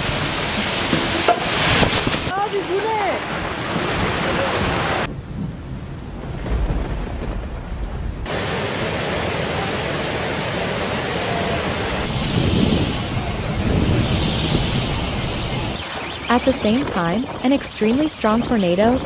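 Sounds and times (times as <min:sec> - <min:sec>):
heavy rain: 0:00.0 - 0:19.0
wind: 0:00.0 - 0:19.0
low rumble: 0:05.1 - 0:08.4, 0:12.0 - 0:15.8.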